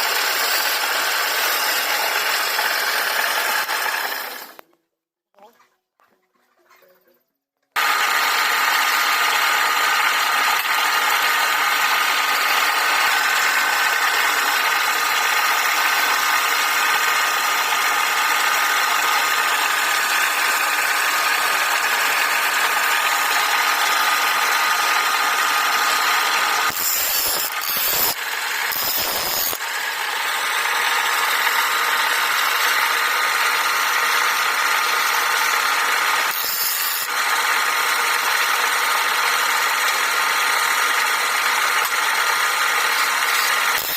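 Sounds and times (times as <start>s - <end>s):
wood lathe running: 0.0s - 4.6s, 7.8s - 43.9s
turning tool scraping wood: 9.8s - 29.6s.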